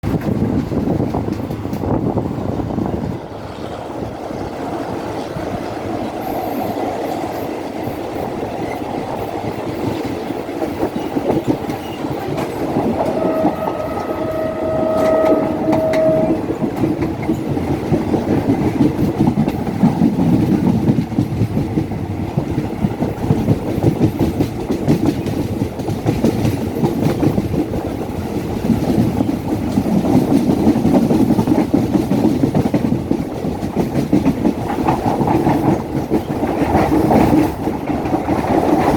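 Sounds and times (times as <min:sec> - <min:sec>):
train wheels rumbling and clicking: 0:00.0 - 0:38.9
steady high tone: 0:13.0 - 0:17.3.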